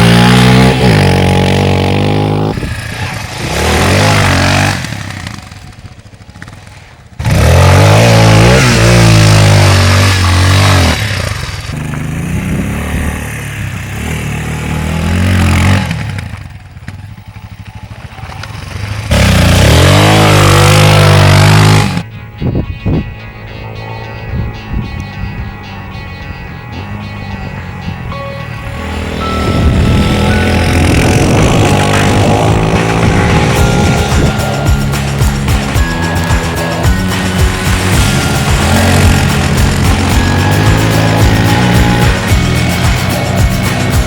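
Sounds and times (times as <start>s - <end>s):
dirt bike engine revving: 0.0s - 22.1s, 27.0s - 44.0s.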